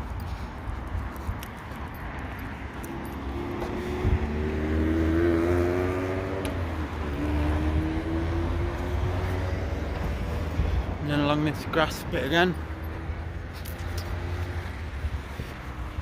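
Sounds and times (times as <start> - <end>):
wind rumble on microphone: 0.0 - 16.0
car engine passing: 2.6 - 11.0.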